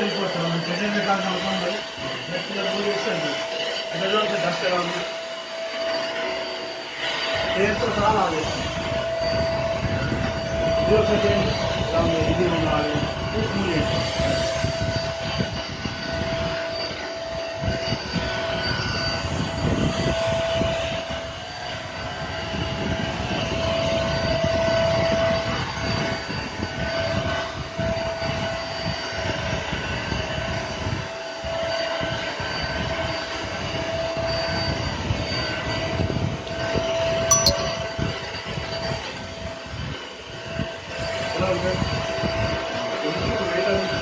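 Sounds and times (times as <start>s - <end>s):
floor cleaner motor whine: 0.0s - 30.0s, 39.8s - 44.0s.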